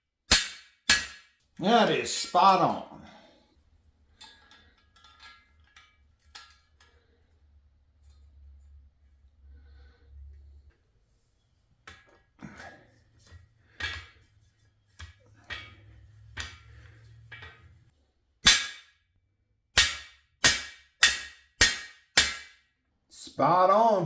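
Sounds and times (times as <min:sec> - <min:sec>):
hammer striking metal tool: 0:00.3 - 0:01.3, 0:18.4 - 0:18.9, 0:19.8 - 0:22.6.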